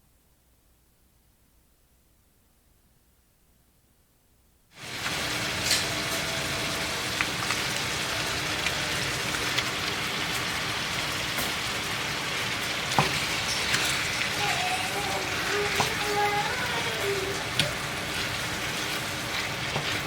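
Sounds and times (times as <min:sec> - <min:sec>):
pops and crackles of frying: 0:04.7 - 0:20.0
ground beef sizzling in a pan: 0:04.8 - 0:20.0.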